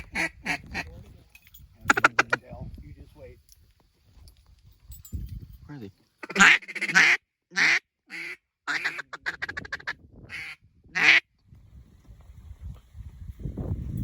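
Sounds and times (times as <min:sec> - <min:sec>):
duck call quacks: 0:00.0 - 0:00.8, 0:06.2 - 0:11.2
duck call chatter notes: 0:00.0 - 0:00.9, 0:01.9 - 0:02.4, 0:06.2 - 0:11.2.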